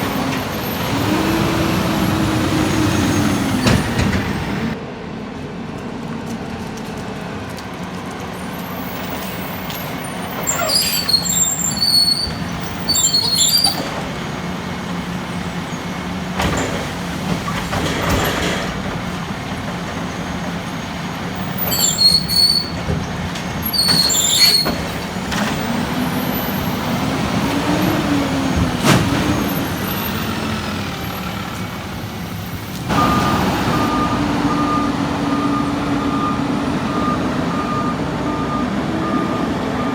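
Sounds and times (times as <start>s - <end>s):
garbage truck engine humming: 0.0s - 39.9s
air hisses with high squeals: 8.6s - 14.0s, 21.5s - 22.8s, 23.6s - 25.0s
reversing alarm beeping: 32.9s - 39.9s.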